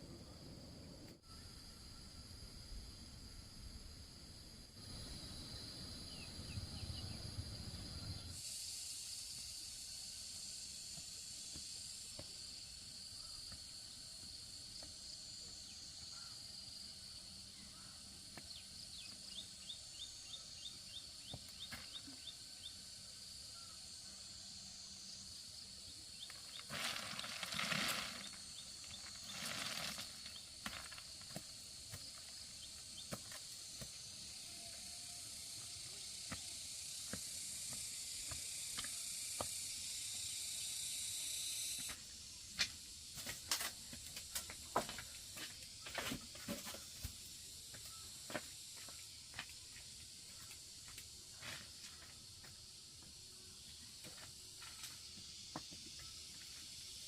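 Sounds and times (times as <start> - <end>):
high insect-like hiss: 0.0 - 57.0
rustling noise: 26.5 - 31.3.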